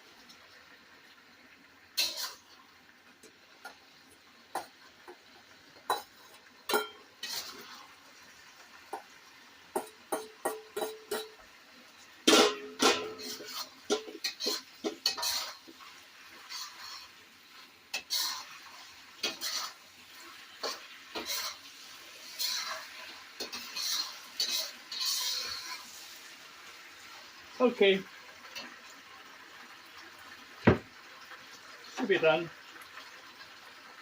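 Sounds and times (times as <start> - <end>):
utensil stirring and scraping pan: 2.0 - 2.5, 4.5 - 5.2, 5.8 - 8.0, 9.7 - 11.4, 12.2 - 26.4.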